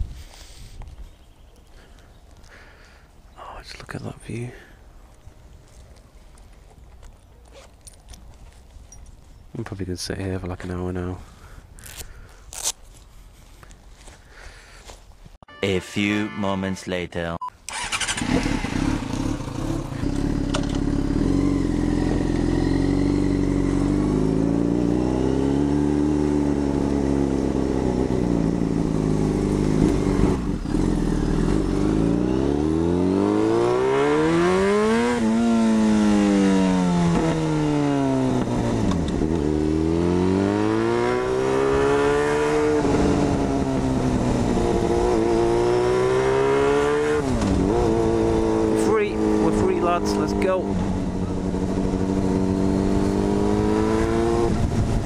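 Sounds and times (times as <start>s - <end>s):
motorcycle engine revving: 17.7s - 55.0s.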